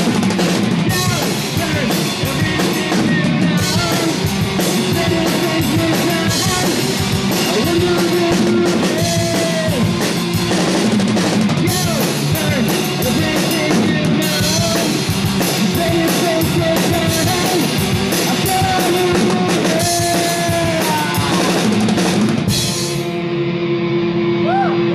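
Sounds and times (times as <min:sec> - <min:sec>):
drum kit with cymbals: 0:00.0 - 0:23.2
electric guitars: 0:00.0 - 0:24.9
person singing: 0:00.9 - 0:10.1, 0:11.6 - 0:21.8.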